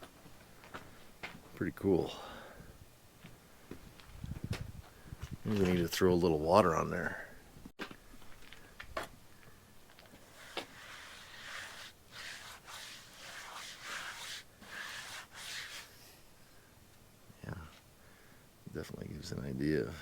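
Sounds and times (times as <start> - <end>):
soft wiping swishes on wood: 10.1 - 16.0.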